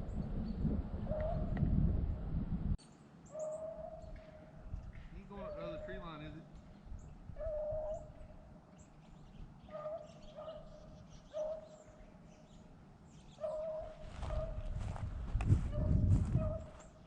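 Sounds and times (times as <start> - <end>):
distant hound baying: 1.1 - 1.6, 3.3 - 4.6, 5.4 - 6.0, 7.3 - 8.2, 9.6 - 12.0, 13.3 - 14.8, 15.6 - 16.9
rustling thumping near microphone: 13.8 - 17.0.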